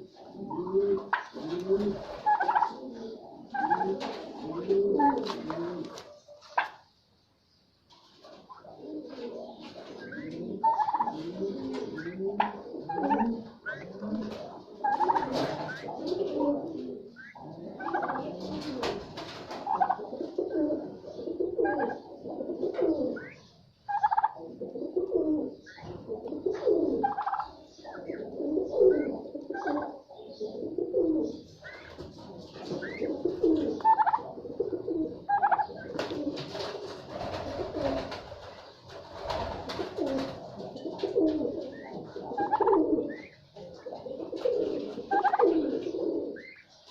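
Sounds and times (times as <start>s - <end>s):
birds cooing: 0.0s - 7.0s, 8.1s - 46.9s
birds chirping: 0.0s - 46.9s.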